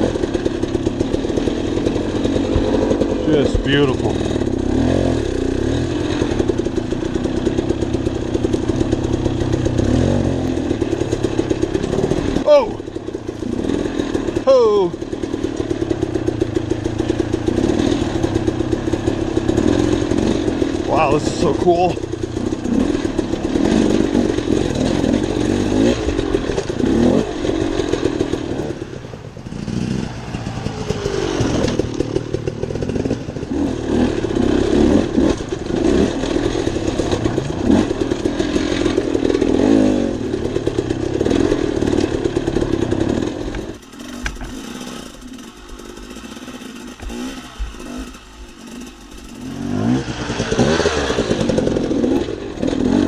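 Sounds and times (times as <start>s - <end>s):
dirt bike engine revving: 0.0s - 53.0s
rattling: 5.9s - 28.6s.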